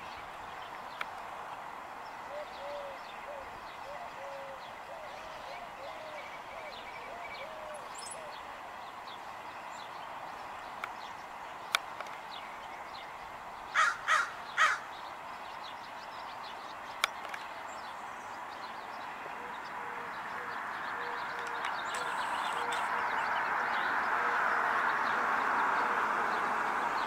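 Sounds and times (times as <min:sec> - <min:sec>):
harsh bird calls: 0:02.1 - 0:08.6, 0:13.6 - 0:27.0
faint bird chirps: 0:19.0 - 0:23.9.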